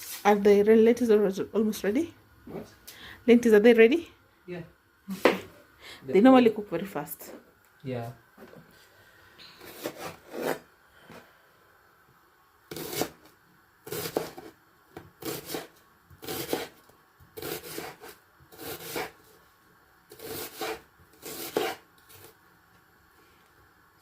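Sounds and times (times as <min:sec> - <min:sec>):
knife slicing onion on board: 0:09.6 - 0:10.6, 0:12.7 - 0:19.2, 0:20.1 - 0:22.4.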